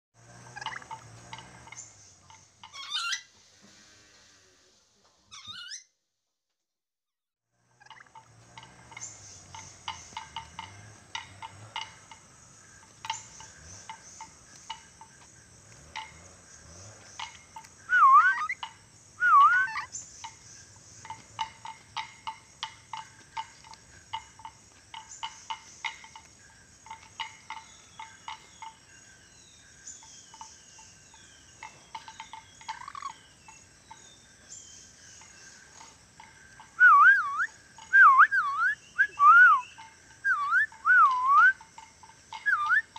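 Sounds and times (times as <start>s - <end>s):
lorikeet chirps and clicks: 1.7s - 3.3s, 5.3s - 5.8s, 9.0s - 10.8s, 12.7s - 24.2s, 24.9s - 42.9s
loud wavering whistles: 17.8s - 18.6s, 19.2s - 19.9s, 36.8s - 41.6s, 42.4s - 42.9s.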